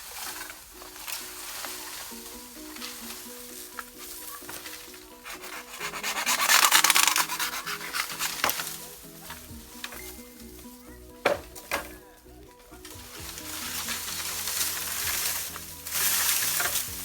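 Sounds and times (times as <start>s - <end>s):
background music with melody: 0.0s - 17.0s
hand saw rasping through bamboo: 2.7s - 10.2s, 13.1s - 17.0s.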